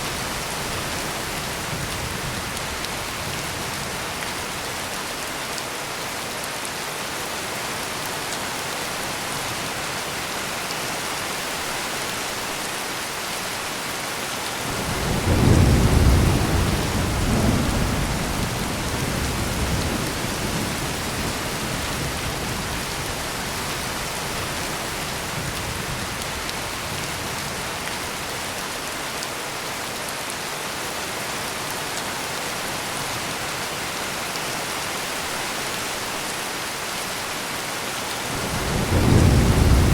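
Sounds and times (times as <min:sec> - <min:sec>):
heavy rain: 0:00.0 - 0:39.9
thunder rumbling: 0:14.7 - 0:22.2, 0:38.3 - 0:39.9.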